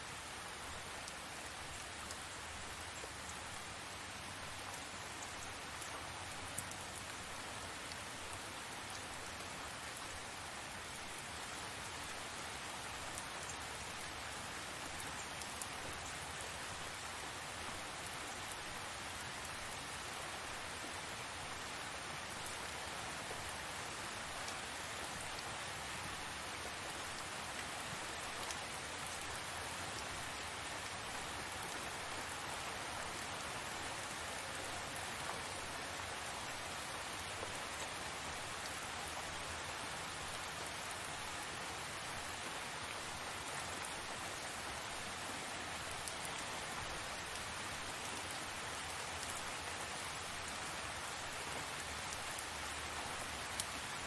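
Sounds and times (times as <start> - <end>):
heavy rain falling: 15.1 - 54.0.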